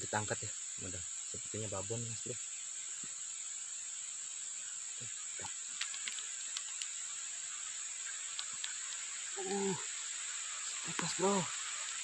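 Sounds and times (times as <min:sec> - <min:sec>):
constant hiss: 0:00.0 - 0:12.0
insects chirring: 0:00.0 - 0:12.0
faint clicks: 0:05.4 - 0:07.0, 0:08.2 - 0:09.6.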